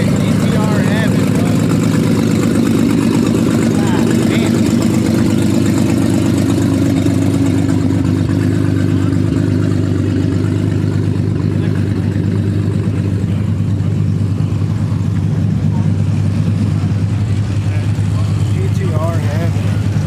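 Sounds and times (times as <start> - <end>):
car engines idling: 0.0 - 20.0.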